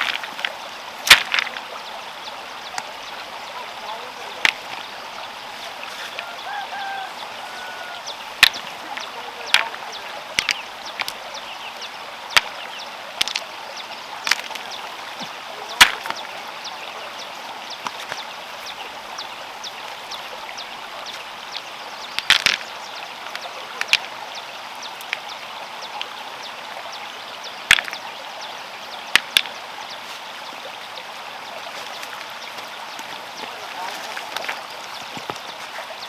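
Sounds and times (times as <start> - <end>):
sharp irregular knocks: 0.0 - 1.7, 4.4 - 4.9, 8.0 - 11.2, 12.3 - 12.6, 13.2 - 13.5, 14.2 - 16.3, 22.2 - 22.7, 27.7 - 28.0.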